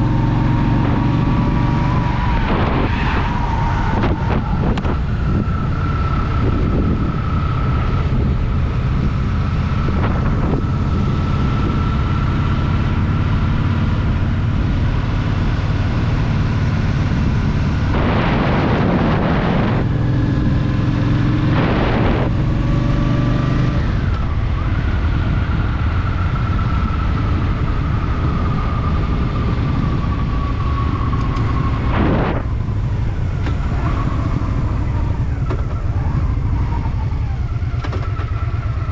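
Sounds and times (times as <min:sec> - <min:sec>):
wind noise on microphone: 0:00.0 - 0:38.9
whooshes of noise: 0:00.7 - 0:07.2
motorcycle engine running: 0:04.6 - 0:38.9.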